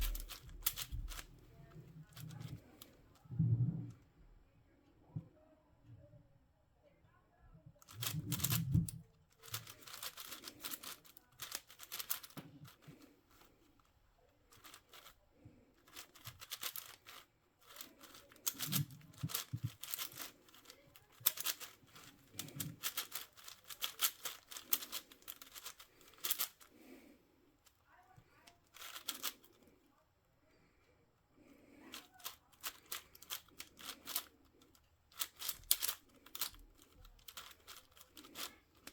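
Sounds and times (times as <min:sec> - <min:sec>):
puzzle cube clicking turns: 0:00.0 - 0:01.4, 0:02.0 - 0:03.0, 0:07.8 - 0:13.5, 0:14.5 - 0:15.2, 0:15.8 - 0:27.0, 0:28.6 - 0:29.6, 0:31.8 - 0:38.9.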